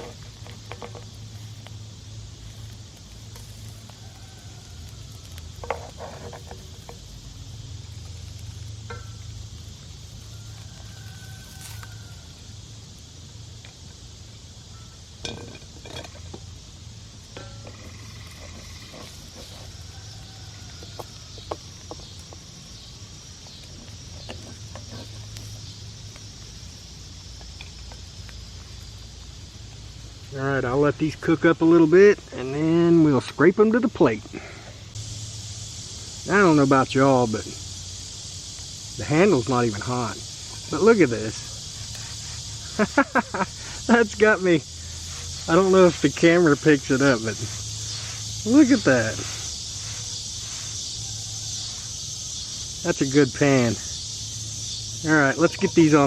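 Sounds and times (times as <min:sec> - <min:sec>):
eggs sizzling in a frying pan: 0:00.0 - 0:31.2, 0:34.0 - 0:56.0
short scrape: 0:47.1 - 0:51.9.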